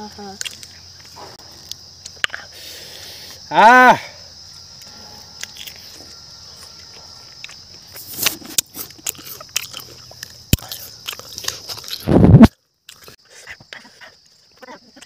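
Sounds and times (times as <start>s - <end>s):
high insect drone: 0.0s - 15.0s
crunchy biting and chewing: 4.8s - 14.3s.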